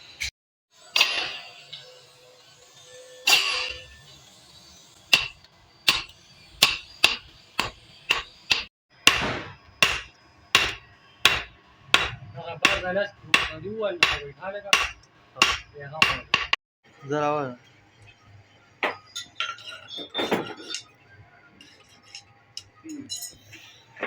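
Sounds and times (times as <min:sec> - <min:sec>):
hammer striking metal on anvil: 0:01.0 - 0:01.5, 0:05.1 - 0:16.6.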